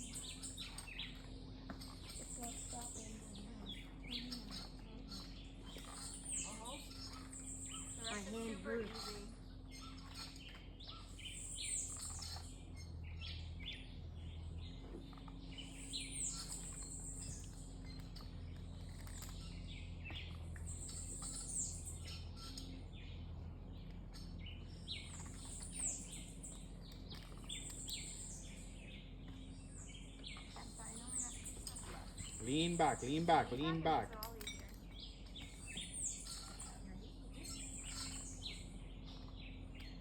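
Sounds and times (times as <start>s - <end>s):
chorus of faint chirps and clicks: 0.0s - 40.0s
high chirping call: 30.0s - 36.8s.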